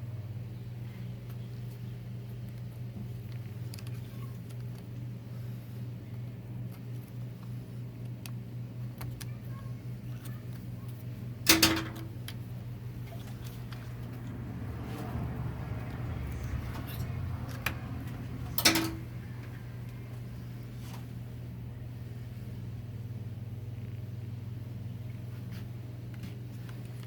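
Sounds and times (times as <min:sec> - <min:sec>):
steady low hum: 0:00.0 - 0:27.0
loud metallic clank: 0:11.5 - 0:12.1, 0:18.6 - 0:19.1
metal parts clicking: 0:18.5 - 0:19.1.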